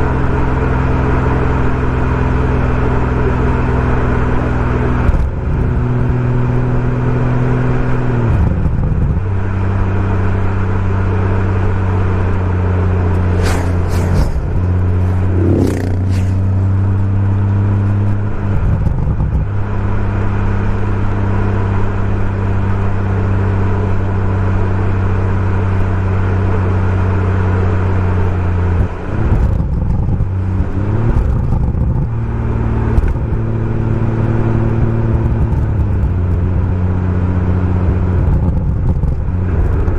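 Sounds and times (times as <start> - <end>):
car engine revving: 9.5 - 22.4
exhaust cracks: 12.8 - 19.5.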